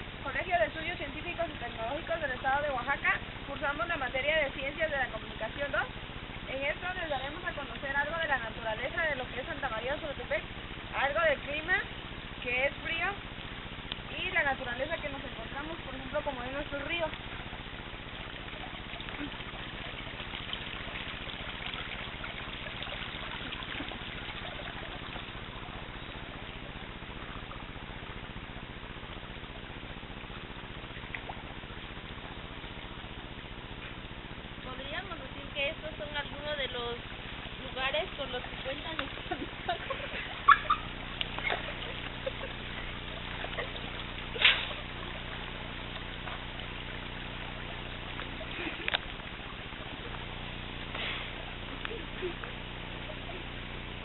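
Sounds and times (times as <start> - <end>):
faint low hum: 0.0 - 54.0
stream running water: 0.0 - 54.0
river water rushing: 36.9 - 54.0.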